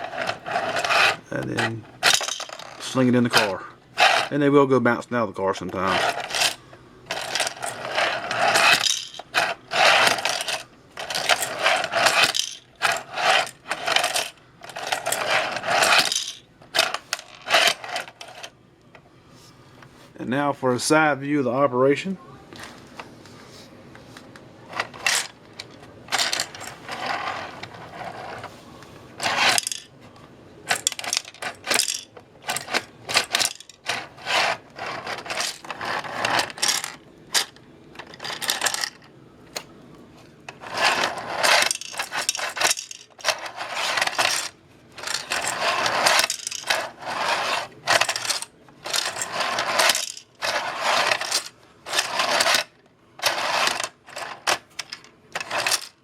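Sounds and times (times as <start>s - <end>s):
plastic beads clattering: 0.0s - 4.3s, 5.8s - 18.5s, 24.7s - 28.4s, 30.7s - 39.0s, 40.5s - 56.0s
toy plastic scraping and clicking: 0.0s - 4.3s, 5.7s - 18.5s, 24.7s - 28.5s, 29.2s - 29.9s, 30.7s - 39.7s, 40.5s - 56.0s.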